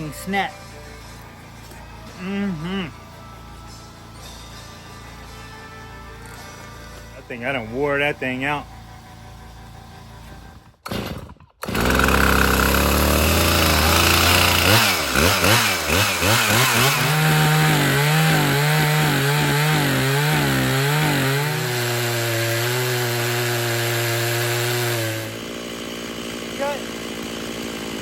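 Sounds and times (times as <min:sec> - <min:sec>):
chainsaw revving: 0:06.0 - 0:28.0.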